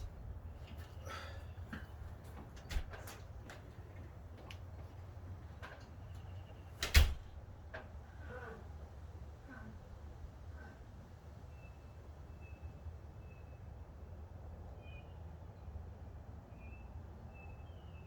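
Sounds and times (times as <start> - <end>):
low steady hum: 0.0 - 4.2.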